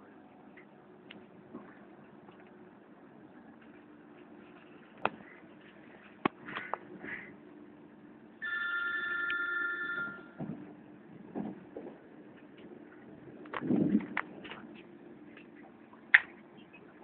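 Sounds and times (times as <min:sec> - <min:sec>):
high ringing tone: 0:08.4 - 0:10.5.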